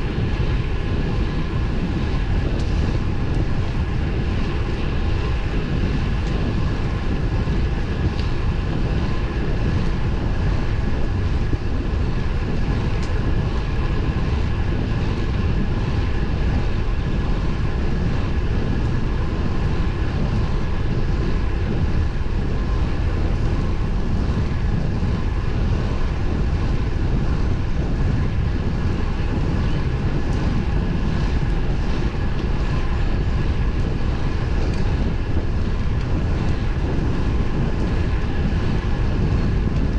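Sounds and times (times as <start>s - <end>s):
faint steady hum: 0.0s - 39.9s
road noise rumble: 0.0s - 39.9s
wind rushing: 0.0s - 39.9s.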